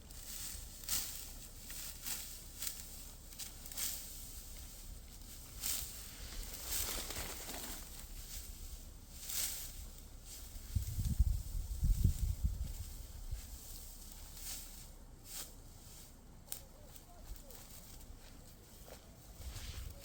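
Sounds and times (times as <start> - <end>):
dry rustling and swishing: 0.0 - 20.0
low rumbling thumps: 9.8 - 14.2.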